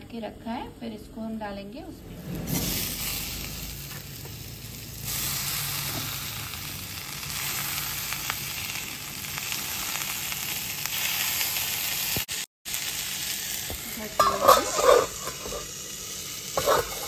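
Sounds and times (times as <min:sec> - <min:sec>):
masala sizzling in hot oil: 0:02.0 - 0:17.0
stirring in a pan: 0:14.2 - 0:15.7, 0:16.5 - 0:17.0.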